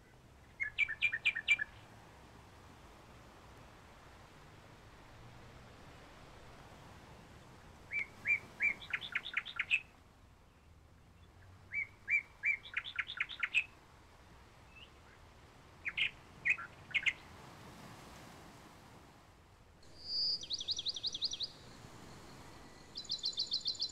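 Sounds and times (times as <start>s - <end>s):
songbird singing trills: 0.4s - 1.8s, 7.9s - 9.9s, 10.5s - 13.8s, 15.8s - 17.2s, 19.8s - 23.9s.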